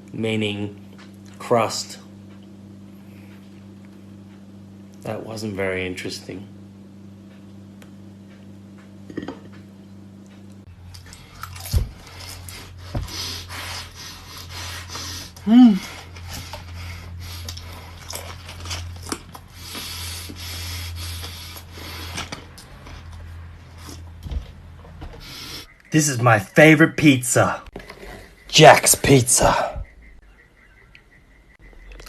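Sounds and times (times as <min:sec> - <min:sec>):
crunching and chewing pastry: 0:10.8 - 0:13.5, 0:14.3 - 0:24.1
person humming: 0:15.4 - 0:16.1.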